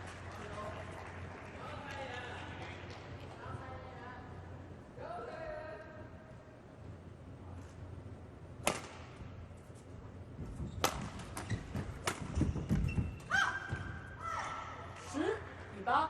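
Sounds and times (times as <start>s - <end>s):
racket hitting shuttlecock: 8.6s - 9.2s, 10.8s - 12.6s
shoes squeaking on floor: 10.5s - 14.0s.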